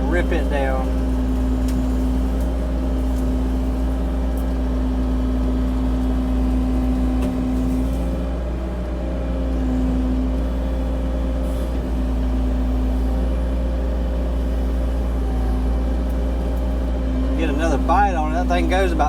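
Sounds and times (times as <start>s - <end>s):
mini excavator diesel engine: 0.0s - 19.0s.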